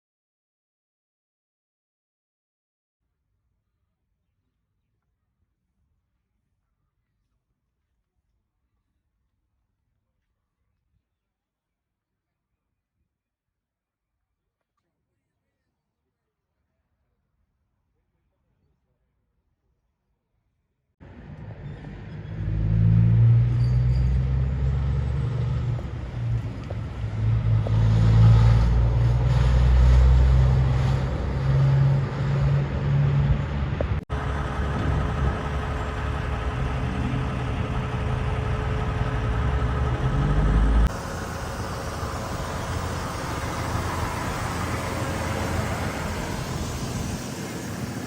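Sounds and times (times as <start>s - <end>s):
diesel lorries driving past: 21.0s - 48.0s.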